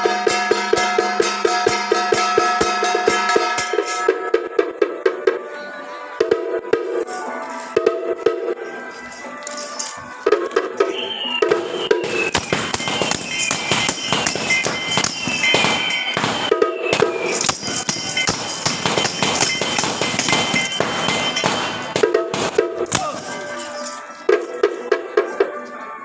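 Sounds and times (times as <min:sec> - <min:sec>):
clanging percussion music: 0:00.0 - 0:05.4, 0:06.2 - 0:25.7
firecrackers crackling: 0:10.9 - 0:23.9.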